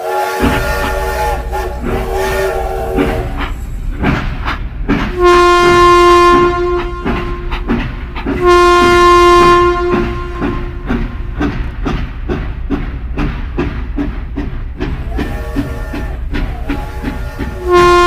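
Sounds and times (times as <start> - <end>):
toy train horn blasts: 0.0 - 3.4, 5.2 - 7.7, 8.4 - 10.9, 16.8 - 18.0
wheels clicking on track: 0.0 - 18.0
toy train rumble: 14.8 - 18.0.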